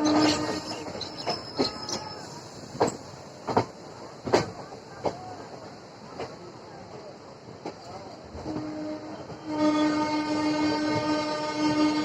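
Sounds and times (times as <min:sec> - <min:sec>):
high wheel squeal: 0:00.0 - 0:03.0
train wheels clacking over rail joints: 0:00.0 - 0:05.3
train rumble: 0:00.0 - 0:12.0.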